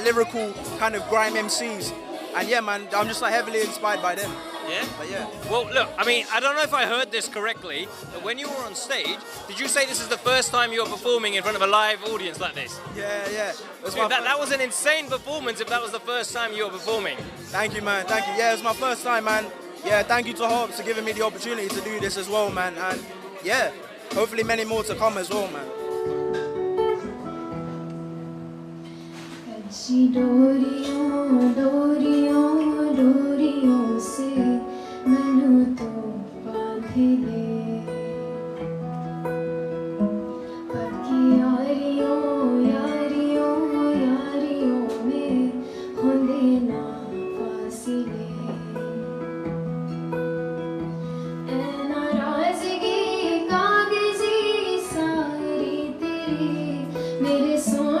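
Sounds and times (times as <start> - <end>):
acoustic guitar chords: 0.0 - 58.0
woman singing: 0.1 - 6.0, 29.4 - 38.6, 40.5 - 49.6, 51.4 - 58.0.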